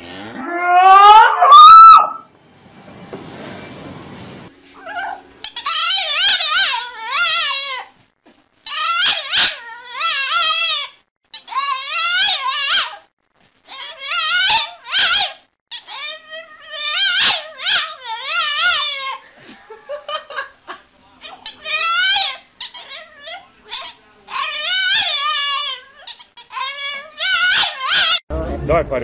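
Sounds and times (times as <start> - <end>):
puppy howling: 0.4 - 2.2, 4.8 - 7.9, 8.7 - 13.0, 13.7 - 19.2, 21.2 - 28.2.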